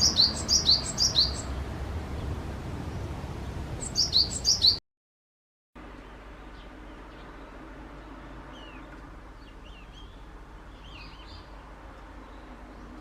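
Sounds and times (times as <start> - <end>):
low background rumble: 0.0 - 4.4
faint bird chirps: 3.8 - 4.8.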